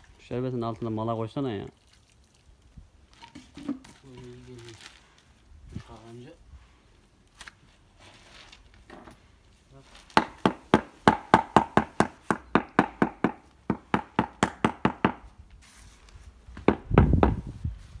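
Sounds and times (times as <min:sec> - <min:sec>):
stone tapping into mortar: 0:10.2 - 0:15.2.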